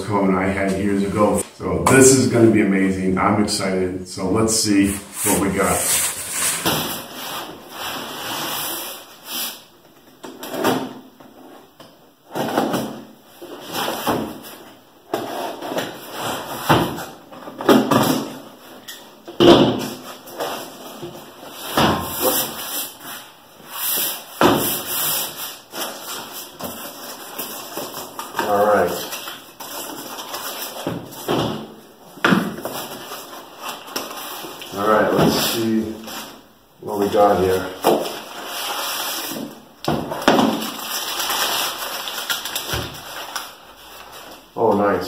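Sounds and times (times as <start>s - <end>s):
cardboard rustling and scraping: 4.9s - 9.1s, 37.4s - 44.5s.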